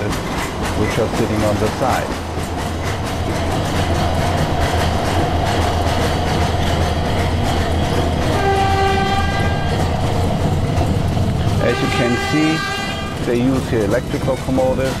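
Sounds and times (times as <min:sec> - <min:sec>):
train rumbling and rattling on track: 0:00.0 - 0:15.0
train horn: 0:08.2 - 0:09.9, 0:11.6 - 0:13.7.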